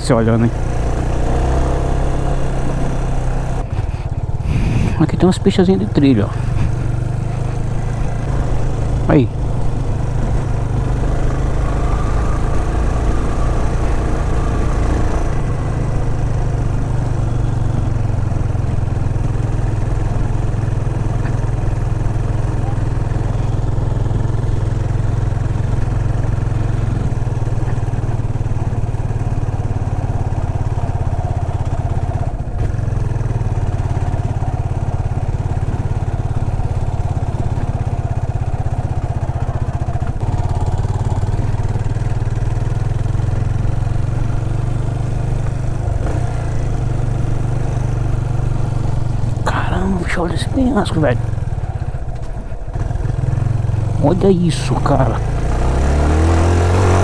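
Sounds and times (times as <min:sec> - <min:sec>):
motorcycle engine under load: 0:00.0 - 0:57.0.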